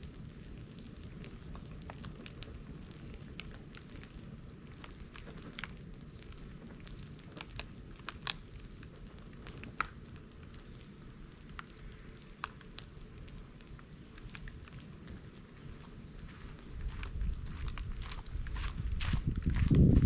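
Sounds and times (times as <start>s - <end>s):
bonfire crackling and popping: 0.0s - 20.0s
low rumble of flames: 0.0s - 20.0s.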